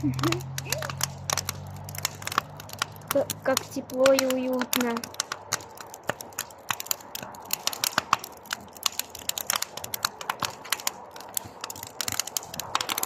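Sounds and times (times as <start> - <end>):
bonfire crackling and popping: 0.0 - 13.0
hiss of flames: 4.2 - 13.0.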